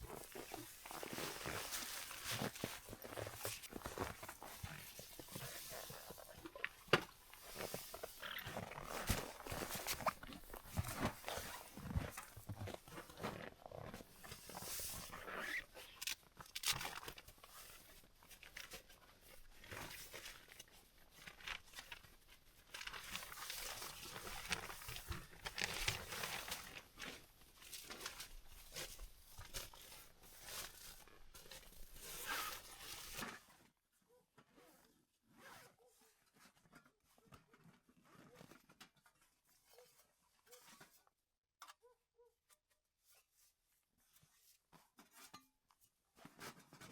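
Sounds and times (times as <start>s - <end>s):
crunching and rustling: 0.0s - 18.8s, 19.6s - 33.3s.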